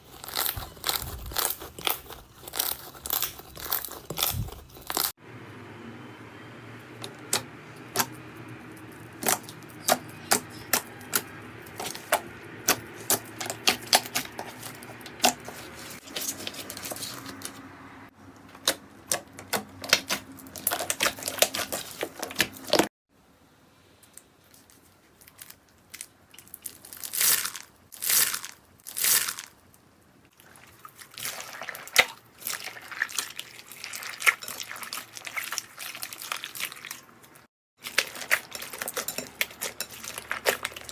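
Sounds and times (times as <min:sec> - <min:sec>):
slime squelching: 0:00.0 - 0:05.2, 0:07.0 - 0:17.6, 0:18.5 - 0:22.9, 0:30.3 - 0:40.9.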